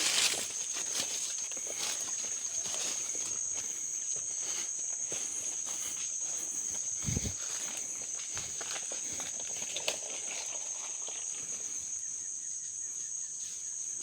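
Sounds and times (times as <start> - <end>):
footsteps through leaf litter: 0.0 - 3.5
insects droning: 0.0 - 14.0.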